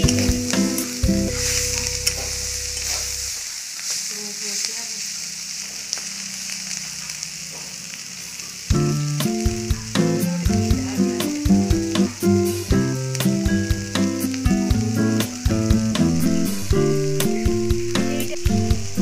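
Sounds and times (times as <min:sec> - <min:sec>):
background music: 0:00.0 - 0:02.7, 0:08.7 - 0:19.0
food sizzling in oil: 0:00.0 - 0:19.0
spatula scraping a pan: 0:01.3 - 0:04.7.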